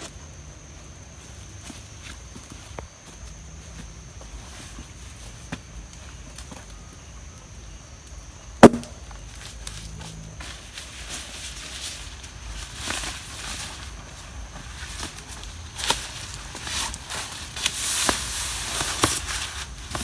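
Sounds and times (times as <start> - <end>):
sharp crack: 8.6 - 9.2.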